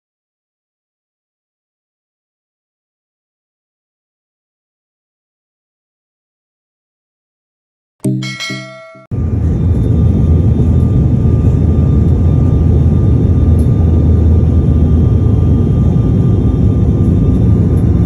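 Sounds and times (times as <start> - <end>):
short pitched tone: 8.0 - 9.1.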